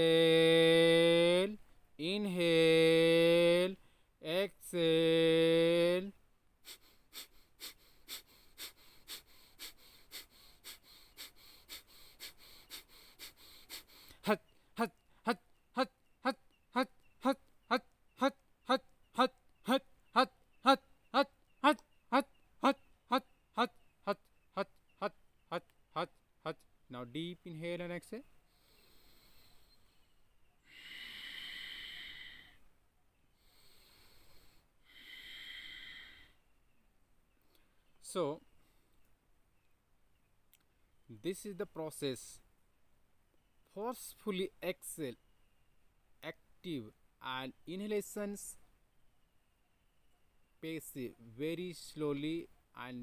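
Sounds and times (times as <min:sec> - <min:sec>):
forceful nasal exhalations: 0:06.6 - 0:14.3, 0:28.5 - 0:29.9, 0:30.7 - 0:32.6, 0:33.4 - 0:36.4
person breathing deeply: 0:06.6 - 0:14.8, 0:28.4 - 0:32.7, 0:33.4 - 0:36.5.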